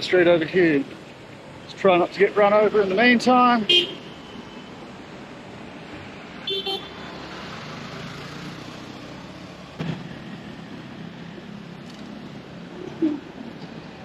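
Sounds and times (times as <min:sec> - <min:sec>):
street traffic: 0:00.0 - 0:14.0
vehicle horn toot: 0:03.7 - 0:04.7, 0:06.5 - 0:07.0.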